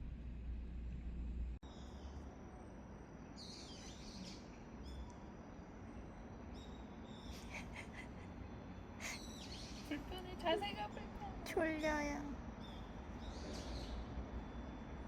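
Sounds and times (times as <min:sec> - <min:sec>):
low background rumble: 0:00.0 - 0:03.3, 0:04.0 - 0:15.0
small birds chirping: 0:06.2 - 0:15.0.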